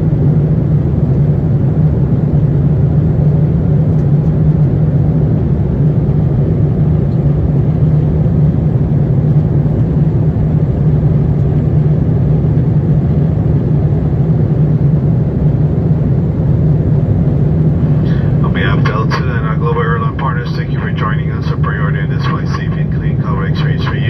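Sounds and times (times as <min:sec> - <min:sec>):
airliner cabin rumble: 0:00.0 - 0:24.0.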